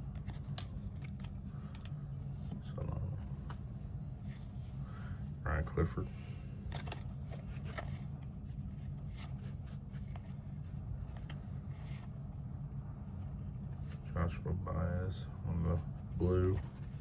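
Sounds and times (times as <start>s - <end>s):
steady low hum: 0.0s - 17.0s
trading cards flipped by hand: 0.1s - 2.0s, 6.7s - 8.2s.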